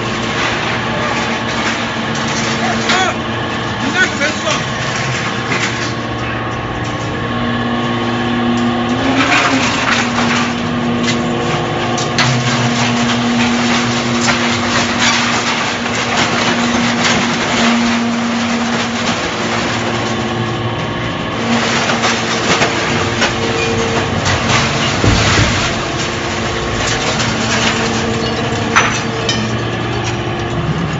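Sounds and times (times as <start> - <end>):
baler mechanical drone: 18.7 - 30.9.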